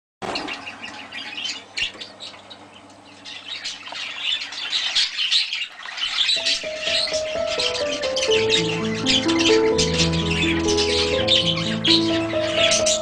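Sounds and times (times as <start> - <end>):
budgerigars chirping and squawking: 0.2 - 13.0
music: 6.4 - 13.0.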